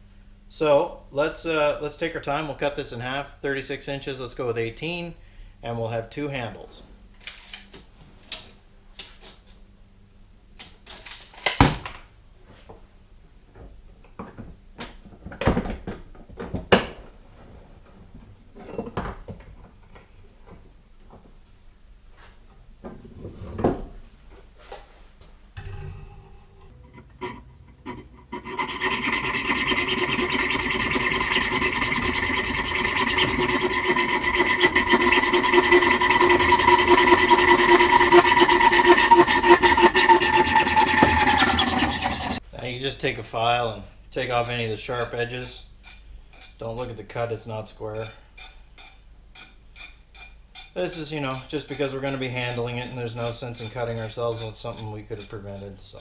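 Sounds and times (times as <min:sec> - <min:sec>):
steel rod being cut: 0:26.7 - 0:42.4.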